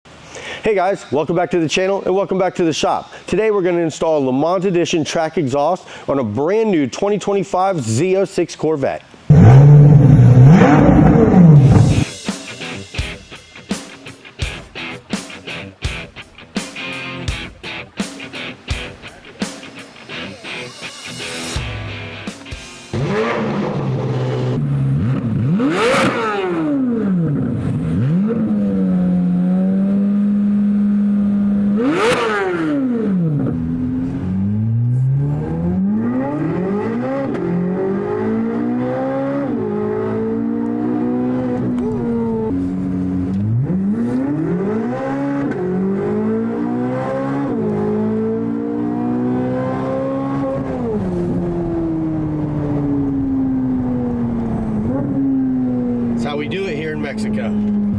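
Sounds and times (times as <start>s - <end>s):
car engine revving: 9.3s - 12.2s, 22.9s - 57.9s.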